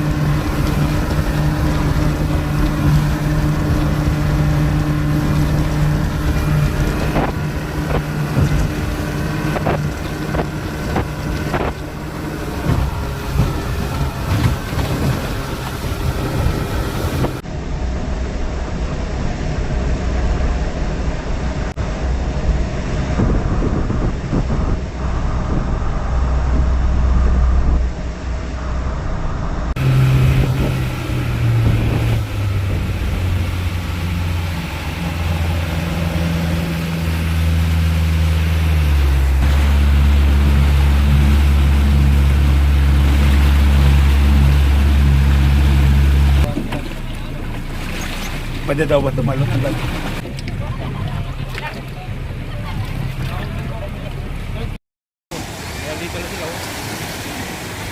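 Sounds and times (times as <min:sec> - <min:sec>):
wind buffeting microphone: 0:00.0 - 0:17.4, 0:18.2 - 0:54.6
hull slapping on waves: 0:00.0 - 0:17.5, 0:29.7 - 0:57.9
speedboat engine: 0:00.0 - 0:57.9.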